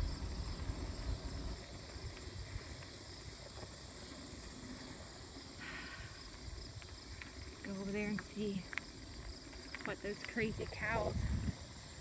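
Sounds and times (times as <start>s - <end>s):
wind on microphone: 0.0s - 2.8s, 10.4s - 12.0s
bicycle rolling noise: 0.0s - 12.0s.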